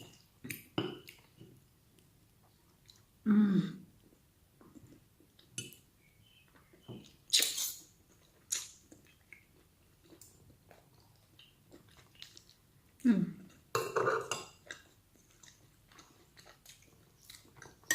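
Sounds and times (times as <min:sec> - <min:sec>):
chewing and crunching: 0:07.6 - 0:13.0, 0:14.6 - 0:17.9.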